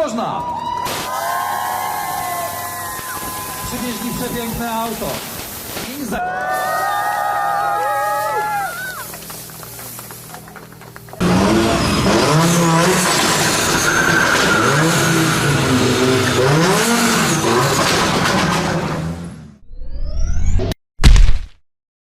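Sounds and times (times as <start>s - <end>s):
rally car engine revving: 11.2s - 19.6s.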